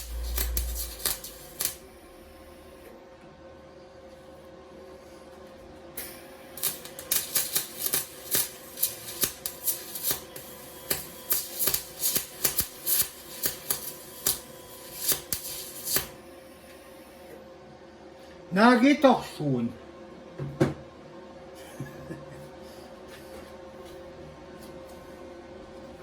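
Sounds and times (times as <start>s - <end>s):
welder arc crackling and popping: 0.0s - 2.9s, 6.0s - 16.3s.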